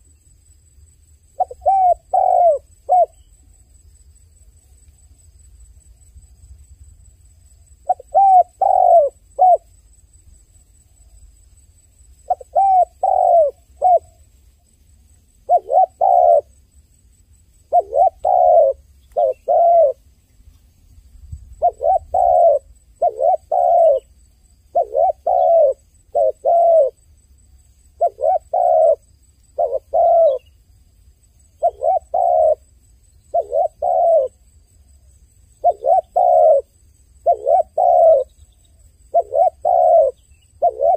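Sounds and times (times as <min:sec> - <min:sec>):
dove cooing: 0:01.4 - 0:03.3, 0:07.8 - 0:09.7, 0:12.2 - 0:14.2, 0:15.4 - 0:16.6, 0:17.7 - 0:20.0, 0:21.6 - 0:27.0, 0:28.0 - 0:30.5, 0:31.6 - 0:32.6, 0:33.3 - 0:34.4, 0:35.6 - 0:40.9.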